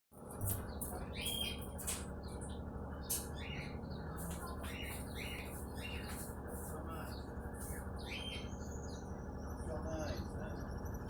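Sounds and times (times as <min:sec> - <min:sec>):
birds chirping: 0:00.2 - 0:11.0
low background hum: 0:00.2 - 0:11.0.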